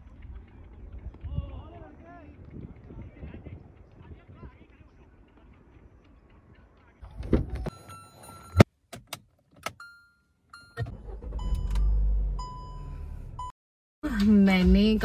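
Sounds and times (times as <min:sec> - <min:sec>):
dashboard warning chimes: 0:07.7 - 0:08.7, 0:09.7 - 0:13.5
car engine starting and idling: 0:10.6 - 0:13.5.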